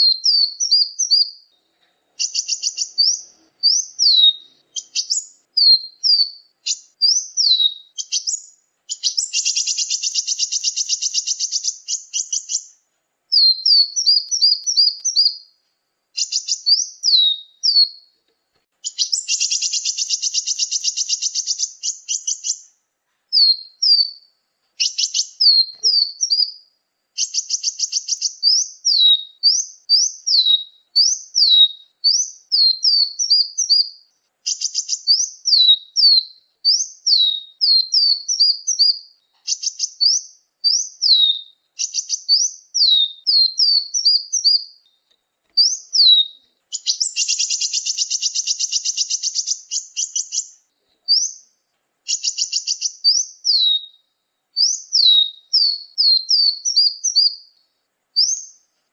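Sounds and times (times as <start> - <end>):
songbird chirps: 0.0 - 58.9
buzzy rattling bird trills: 2.2 - 15.4, 18.8 - 22.7, 45.6 - 50.6.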